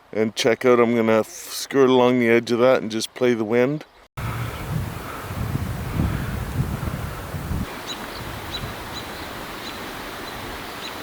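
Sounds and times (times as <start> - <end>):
wind buffeting microphone: 4.2 - 11.0
steady hiss: 4.5 - 11.0.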